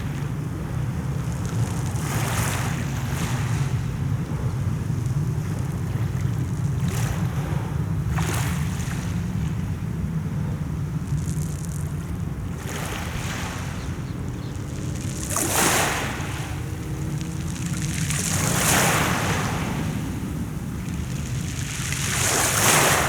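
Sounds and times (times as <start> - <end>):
sea waves washing onto shore: 0.0 - 23.0
steady low rumble: 16.0 - 23.0.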